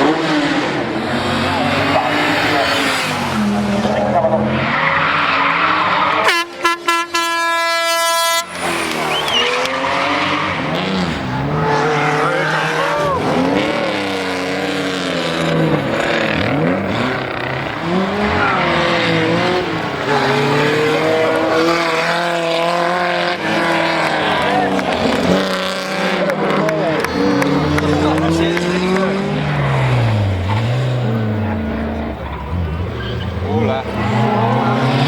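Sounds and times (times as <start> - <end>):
rally car engines revving: 0.0 - 35.0
horn sounding: 6.1 - 14.2.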